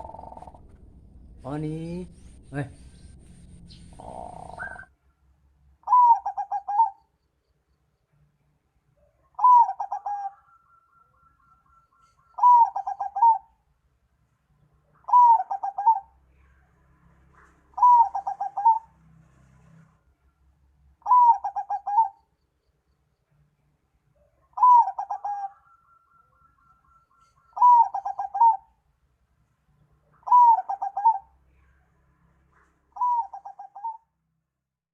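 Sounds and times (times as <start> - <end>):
bird calling: 0.0 - 0.7, 2.1 - 5.0, 5.8 - 7.2, 9.2 - 13.6, 15.0 - 16.2, 17.7 - 18.9, 21.0 - 22.8, 24.3 - 28.8, 30.1 - 31.4, 32.5 - 34.1.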